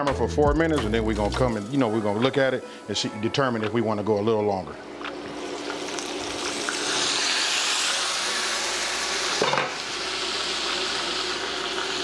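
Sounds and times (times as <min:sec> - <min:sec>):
chicken sizzling in oil: 0:05.2 - 0:12.0.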